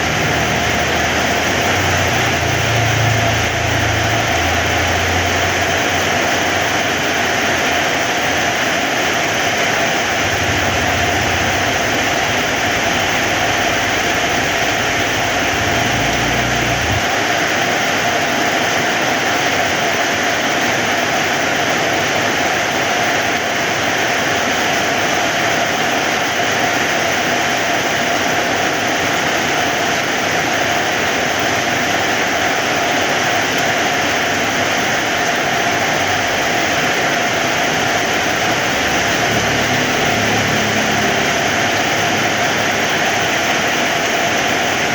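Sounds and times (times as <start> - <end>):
heavy rain hissing: 0.0 - 44.9
low rumbles: 10.0 - 17.2.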